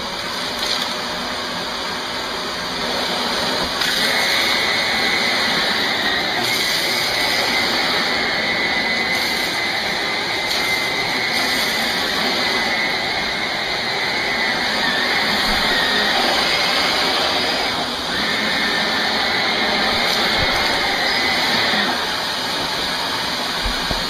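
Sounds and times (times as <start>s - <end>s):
vacuum cleaner on carpet: 0.0s - 24.0s
high steady whine: 3.6s - 24.0s.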